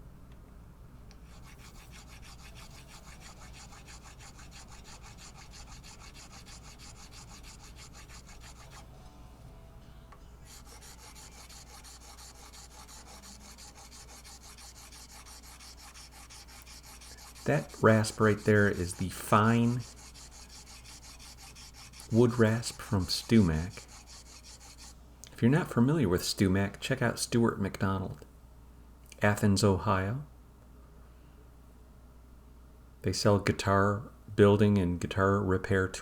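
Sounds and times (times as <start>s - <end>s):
wood rasp filing: 1.3s - 8.9s, 10.5s - 24.9s.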